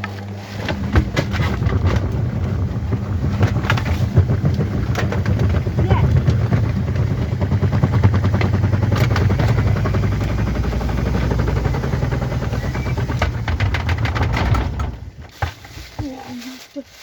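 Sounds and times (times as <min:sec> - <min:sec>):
washing machine humming and rattling: 0:00.0 - 0:16.4.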